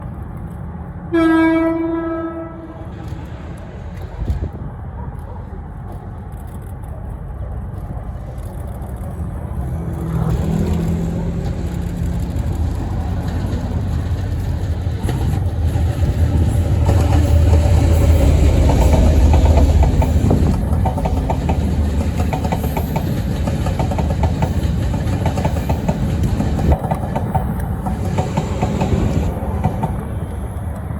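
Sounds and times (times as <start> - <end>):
diesel locomotive engine droning: 0.0 - 30.9
train wheels clattering over rails: 8.7 - 30.9.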